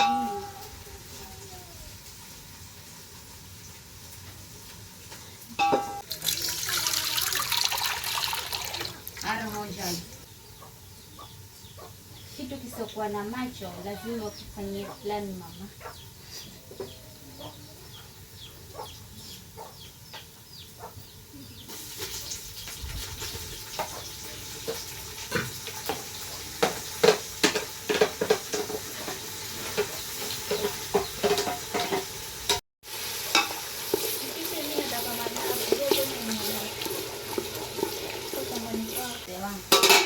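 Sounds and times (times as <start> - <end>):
food sizzling in a pan: 0.0 - 14.4, 21.7 - 40.0
chickens clucking softly: 15.8 - 21.7.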